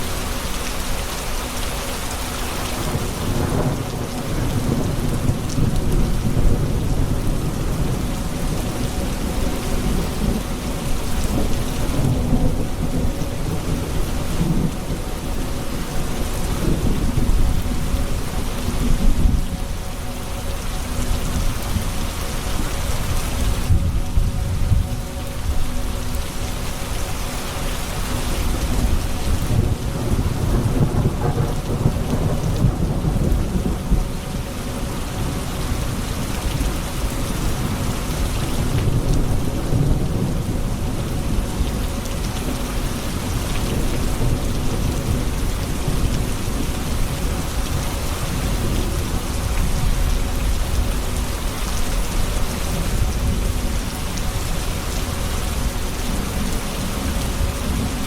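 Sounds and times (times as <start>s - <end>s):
heavy rain: 0.0s - 58.0s
rolling thunder: 28.6s - 36.9s.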